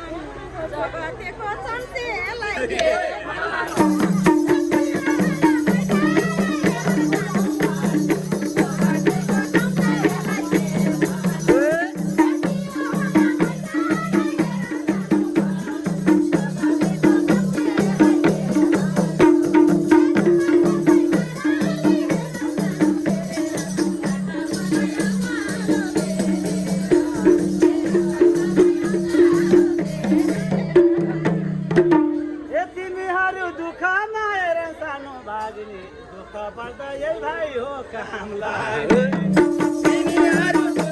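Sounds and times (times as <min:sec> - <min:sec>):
shaken percussion: 0:03.7 - 0:32.5, 0:38.9 - 0:40.9.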